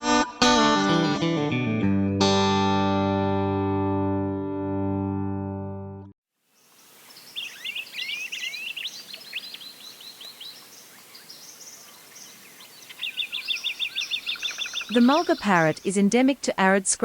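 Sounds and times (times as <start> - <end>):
guitar music: 0.0 - 6.1
steady outdoor hiss: 6.3 - 17.0
parrots chirping: 12.9 - 15.8.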